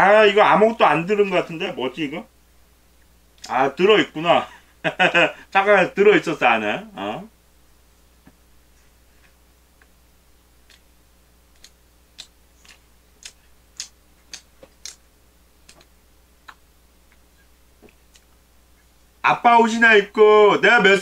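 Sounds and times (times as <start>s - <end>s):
mouth clicks and smacks chewing: 10.6s - 10.9s, 11.5s - 15.0s, 15.6s - 18.9s.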